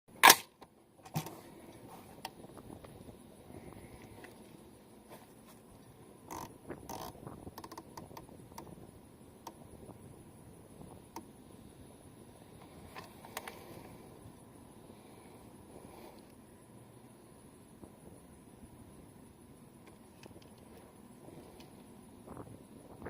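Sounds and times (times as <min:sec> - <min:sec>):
rifle shot: 0:00.2 - 0:00.5
small clicks and rustles: 0:12.6 - 0:14.0, 0:19.8 - 0:22.4.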